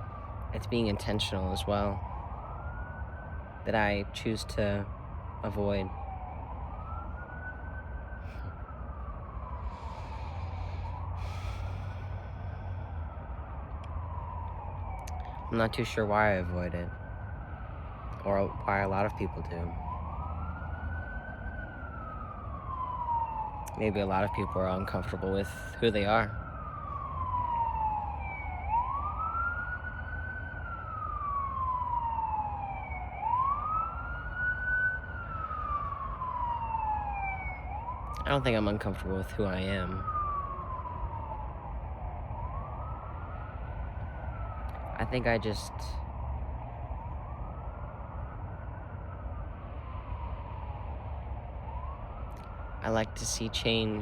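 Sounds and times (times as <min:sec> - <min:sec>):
siren wailing: 0:00.0 - 0:54.0
steady low rumble: 0:05.2 - 0:16.4.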